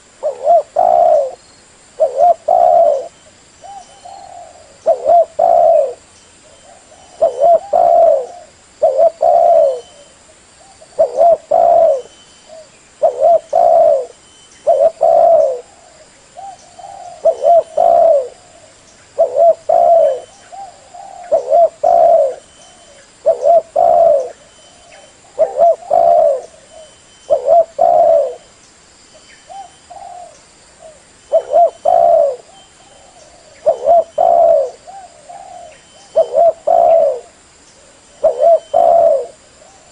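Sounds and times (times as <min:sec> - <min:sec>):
dove cooing: 0:00.0 - 0:01.4, 0:02.0 - 0:28.5, 0:29.5 - 0:39.9.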